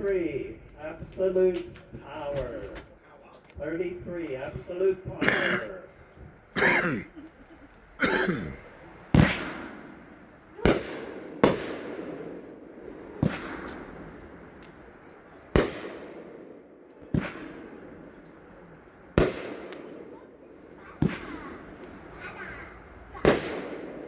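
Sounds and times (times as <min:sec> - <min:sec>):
firework booms echoing: 0:09.1 - 0:18.4, 0:19.0 - 0:22.2, 0:23.1 - 0:24.0.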